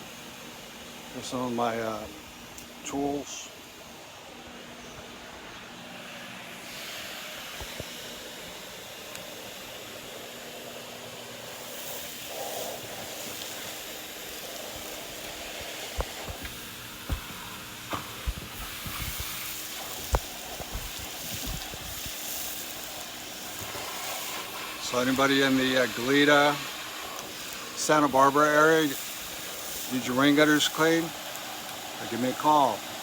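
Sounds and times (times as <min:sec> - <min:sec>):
gutter vacuum running: 0:00.0 - 0:33.0.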